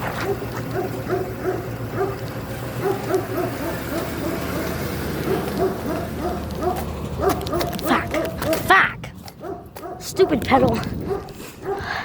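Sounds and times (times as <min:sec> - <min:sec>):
dog barking: 0:00.1 - 0:02.2, 0:02.8 - 0:08.7, 0:09.4 - 0:12.0.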